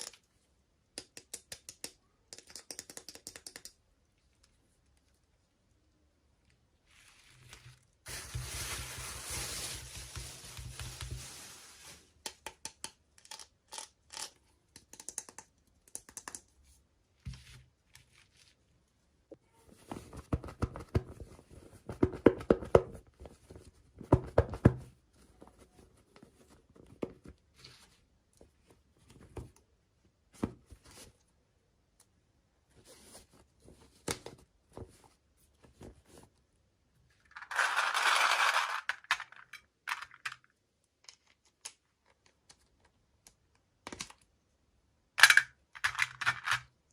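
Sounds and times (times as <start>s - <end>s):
packaging rustling: 7.0s - 12.1s.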